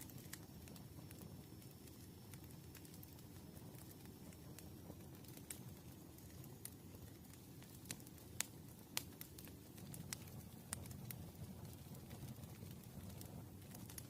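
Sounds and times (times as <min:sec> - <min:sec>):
burning wood crackling and popping: 0:00.0 - 0:14.0
rush of flames: 0:00.0 - 0:14.0.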